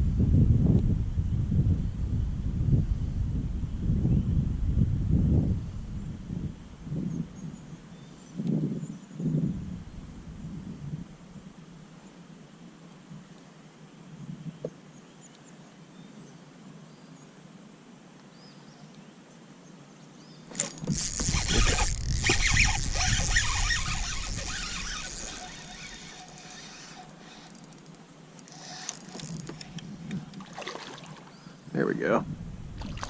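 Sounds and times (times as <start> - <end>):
water splashing and thrashing: 20.5 - 27.5, 28.5 - 31.4, 32.8 - 33.0.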